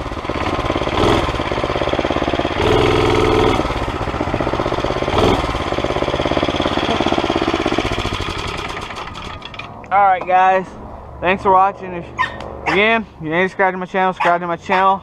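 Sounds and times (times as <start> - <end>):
small engine running: 0.0 - 9.6.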